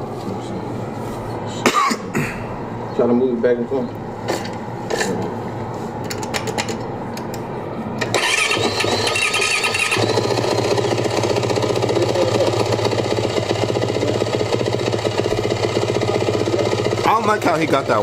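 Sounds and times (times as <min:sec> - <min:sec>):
dirt bike engine running: 0:08.1 - 0:18.0.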